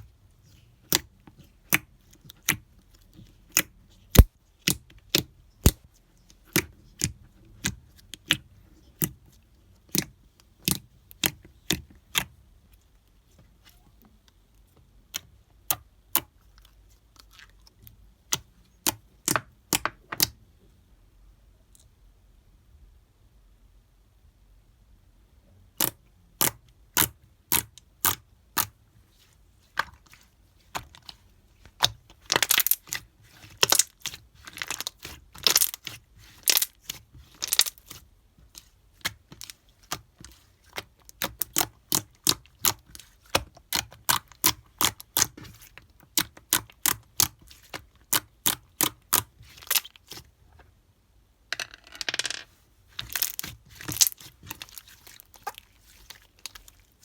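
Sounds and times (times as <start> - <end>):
slime crackling squelches: 0.5 - 5.8, 25.8 - 50.3, 52.9 - 57.0
slime clicking and popping: 3.5 - 5.8, 53.0 - 55.6.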